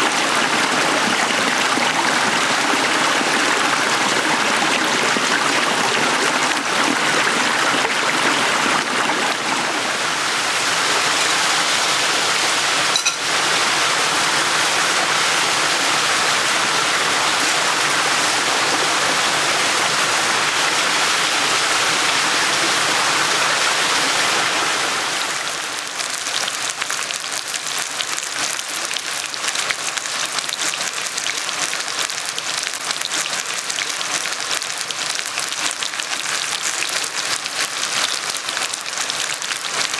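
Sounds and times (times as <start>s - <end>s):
stream water burbling: 0.0s - 39.9s
crackling patter: 25.8s - 39.9s.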